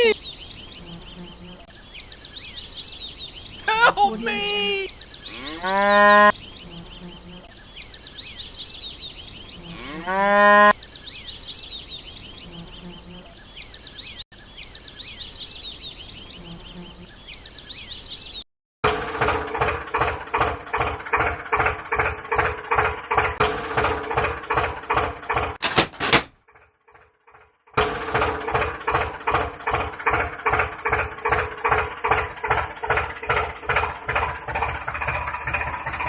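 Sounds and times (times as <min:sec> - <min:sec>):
birds chirping: 0:00.0 - 0:18.5, 0:28.4 - 0:36.0
cow mooing: 0:05.3 - 0:06.3, 0:09.6 - 0:10.7.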